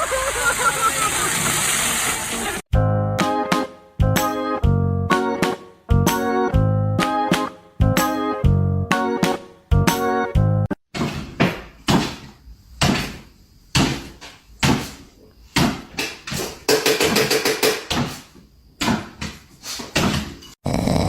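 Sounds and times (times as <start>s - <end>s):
knocks or thumps: 10.9s - 20.4s.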